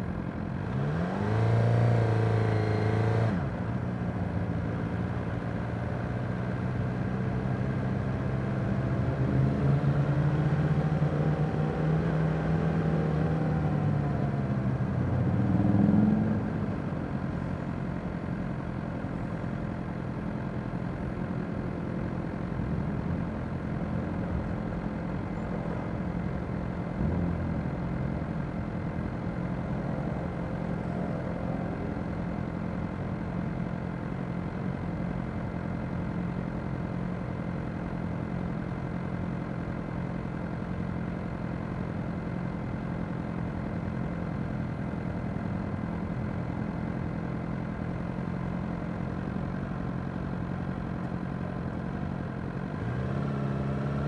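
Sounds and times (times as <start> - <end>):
motorcycle engines idling: 16.4 - 53.0.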